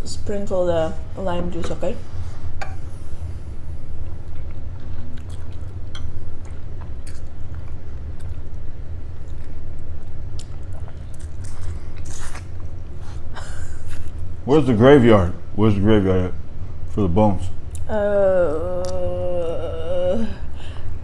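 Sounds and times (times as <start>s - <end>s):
chewing crispy food: 4.1s - 14.2s.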